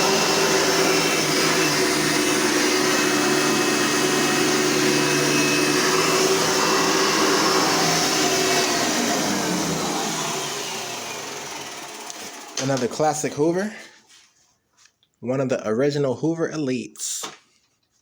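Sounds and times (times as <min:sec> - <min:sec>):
vacuum cleaner motor running: 0:00.0 - 0:13.7.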